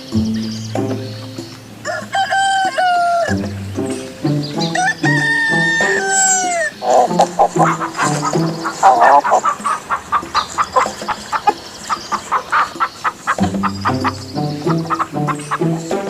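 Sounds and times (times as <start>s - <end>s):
background music: 0.0s - 16.0s
chicken clucking: 0.8s - 16.0s
rooster crowing: 1.8s - 3.4s, 4.7s - 7.8s, 8.7s - 9.6s.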